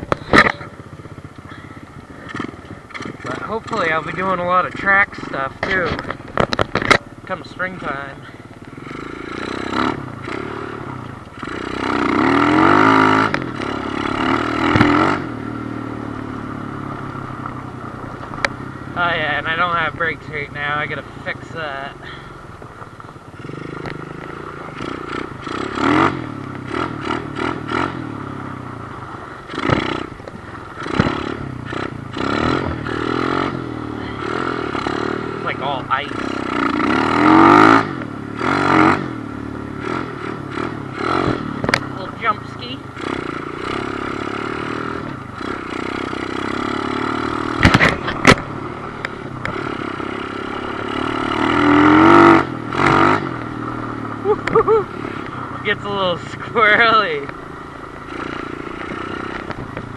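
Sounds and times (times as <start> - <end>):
motorcycle engine revving: 0.0 - 59.9
sharp clattering knocks: 47.5 - 49.7.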